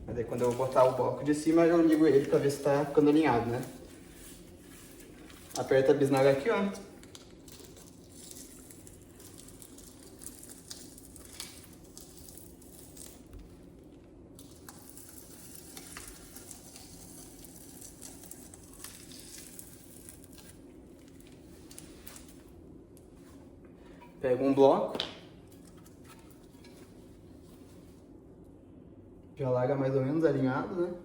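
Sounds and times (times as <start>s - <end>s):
steady low hum: 0.0s - 31.0s
mortar squeezed from plastic bag: 0.3s - 13.7s, 14.4s - 22.5s.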